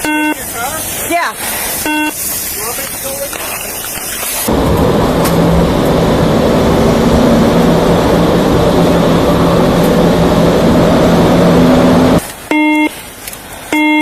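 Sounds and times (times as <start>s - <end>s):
short electronic beeps: 0.0s - 0.4s, 1.8s - 2.2s, 12.5s - 13.0s, 13.7s - 14.0s
road and wind noise: 0.0s - 13.8s
engine hum: 4.3s - 12.3s.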